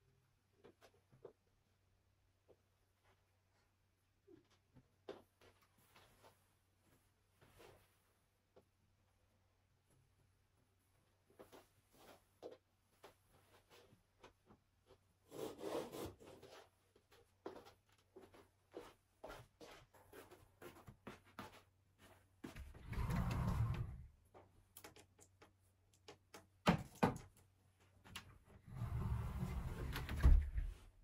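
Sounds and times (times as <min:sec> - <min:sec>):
small clicks and knocks: 0:24.3 - 0:27.5.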